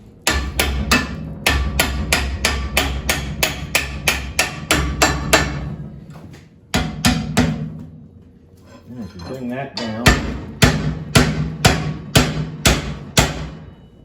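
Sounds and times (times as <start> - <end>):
hammer striking iron on anvil: 0.2 - 5.8, 6.7 - 7.8, 9.8 - 13.8.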